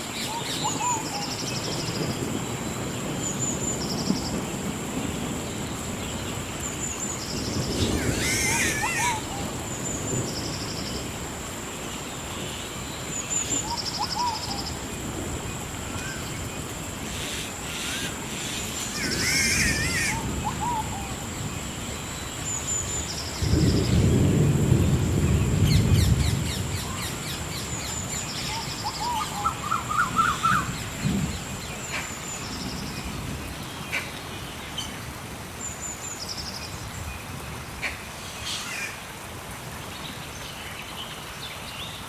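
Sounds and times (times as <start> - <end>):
warbling bird calls: 0.2 - 2.2, 6.8 - 10.9, 13.2 - 15.0, 15.9 - 21.8, 25.5 - 33.1, 37.8 - 39.2
high-pitched insect drone: 17.1 - 20.5.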